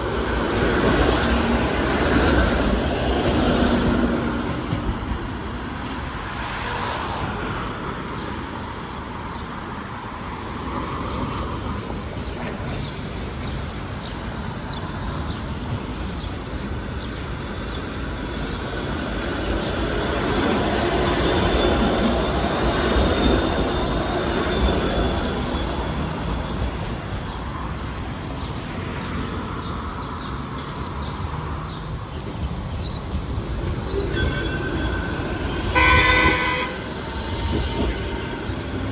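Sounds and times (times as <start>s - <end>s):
streetcar running on rails: 0.0s - 38.9s
high wheel squeal: 15.9s - 27.0s, 32.1s - 38.9s.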